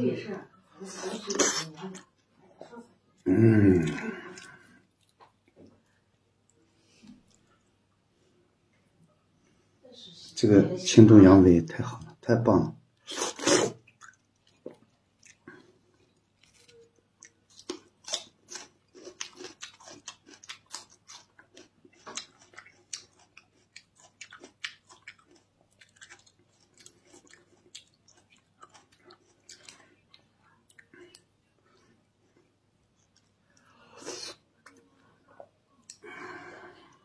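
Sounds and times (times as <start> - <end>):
chewing smacks and clicks: 13.8 - 15.5, 16.1 - 31.3.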